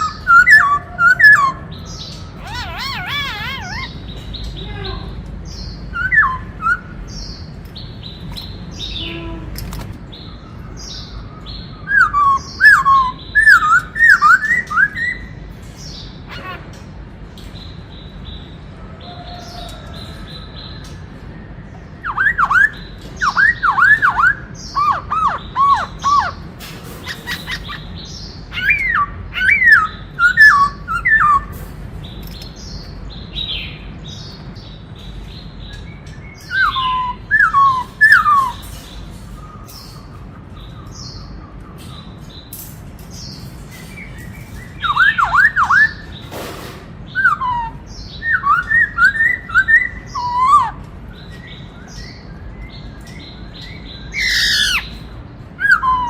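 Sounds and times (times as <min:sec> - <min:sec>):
bird whistling song: 0:00.0 - 0:04.6, 0:05.6 - 0:07.5, 0:10.2 - 0:15.4, 0:21.6 - 0:26.4, 0:27.0 - 0:31.6, 0:35.7 - 0:42.2, 0:43.8 - 0:46.3, 0:47.1 - 0:55.0, 0:55.6 - 0:56.0
faint high bird chirps: 0:00.0 - 0:07.5.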